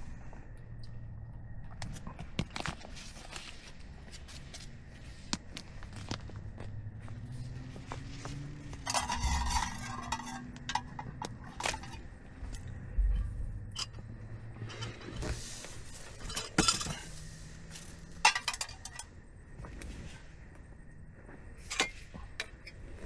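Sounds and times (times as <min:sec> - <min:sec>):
cookware and utensils clinking: 0:08.8 - 0:12.1, 0:14.6 - 0:19.1.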